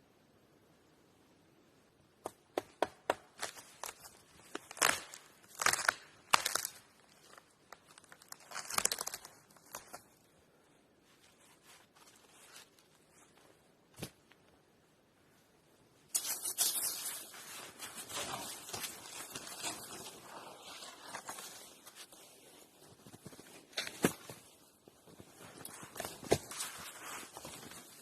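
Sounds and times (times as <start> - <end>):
handling clicks and crinkling rustles: 3.3 - 10.4, 16.1 - 28.0.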